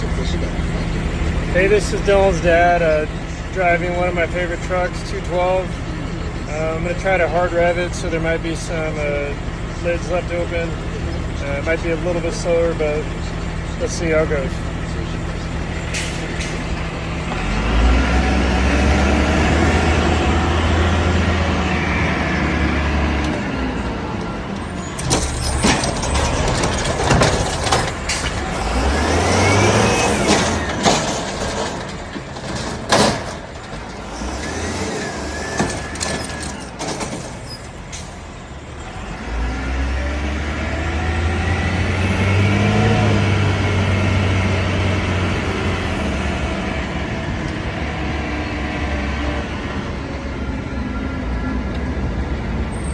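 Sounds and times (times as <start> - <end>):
cart clanking and clattering: 0.0 - 21.2, 23.2 - 39.0
truck engine revving: 0.0 - 52.9.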